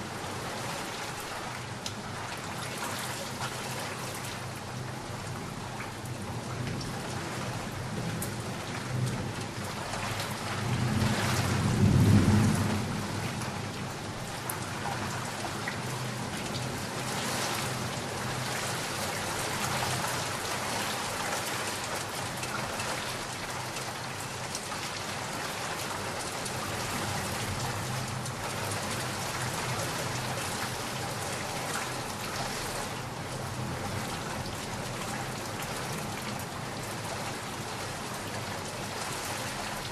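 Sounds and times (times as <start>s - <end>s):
heavy rain: 0.0s - 39.9s
thunder rolling: 10.5s - 13.4s.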